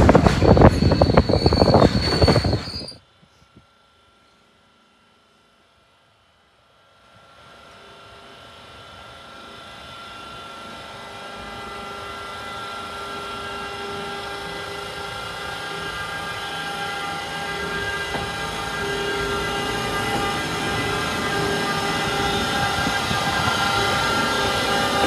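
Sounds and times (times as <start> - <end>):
rail rumble: 0.0 - 3.0, 8.8 - 25.0
electric train whine: 0.0 - 25.0.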